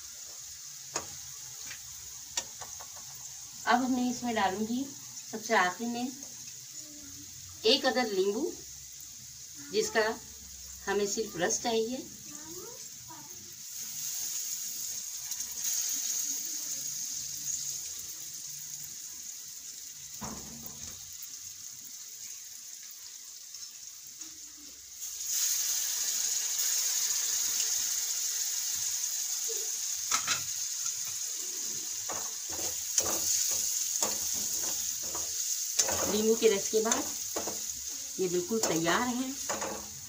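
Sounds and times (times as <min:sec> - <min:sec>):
chillies sizzling in hot oil: 0:00.0 - 0:40.0
metal spatula scraping a pan: 0:30.1 - 0:40.0.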